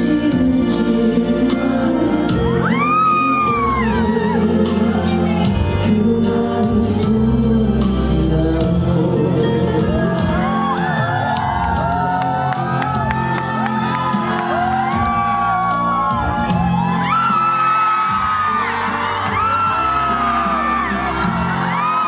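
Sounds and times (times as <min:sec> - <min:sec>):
drums: 0:00.0 - 0:22.0
live band playing: 0:00.0 - 0:22.0
person singing: 0:00.0 - 0:22.0
audience whooping and shouting: 0:02.4 - 0:05.5, 0:09.8 - 0:22.0.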